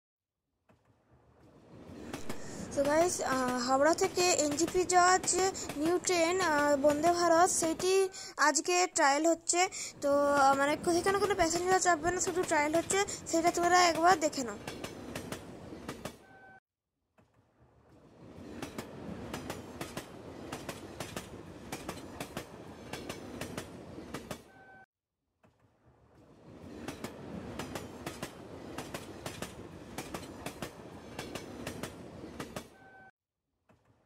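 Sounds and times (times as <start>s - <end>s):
train wheels clattering: 1.8s - 8.1s, 10.2s - 16.2s, 18.1s - 24.6s, 26.4s - 32.8s.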